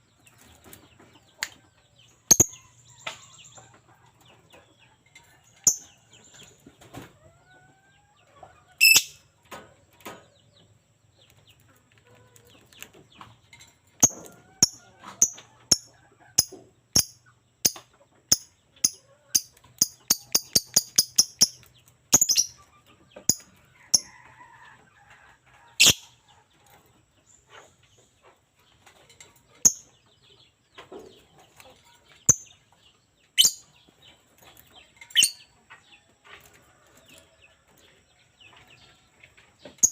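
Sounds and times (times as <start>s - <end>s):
bird chirping: 0.0s - 6.8s, 8.8s - 9.3s, 12.4s - 24.2s, 25.7s - 35.9s, 39.6s - 39.9s.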